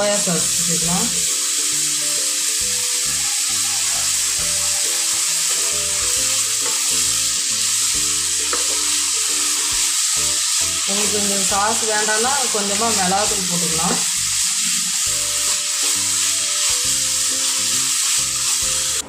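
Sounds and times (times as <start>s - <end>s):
vegetables sizzling in a frying pan: 0.0s - 19.0s
wooden spatula stirring: 8.4s - 9.7s.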